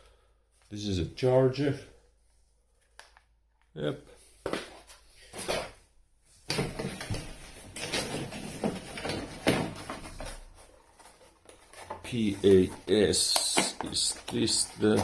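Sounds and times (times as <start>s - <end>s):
rustling and scraping of box: 6.5s - 15.0s.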